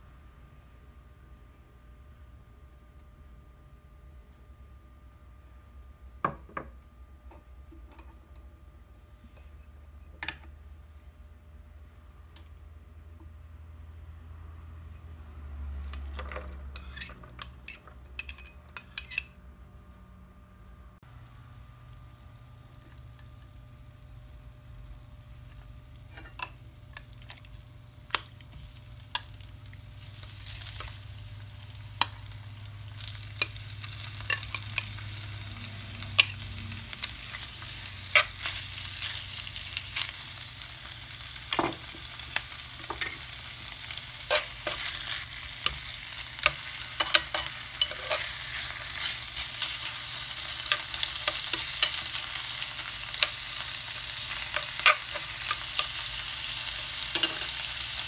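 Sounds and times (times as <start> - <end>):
chicken sizzling on a grill pan: 21.1 - 58.0.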